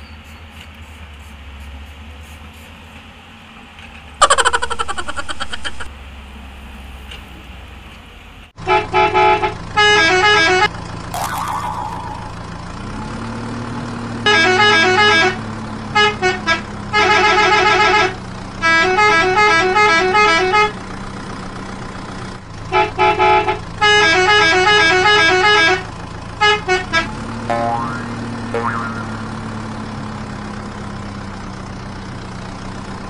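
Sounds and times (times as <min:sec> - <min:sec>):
engine hum: 0:00.0 - 0:33.0
musical vehicle horn honking: 0:08.6 - 0:10.7, 0:14.2 - 0:20.8, 0:22.7 - 0:27.9.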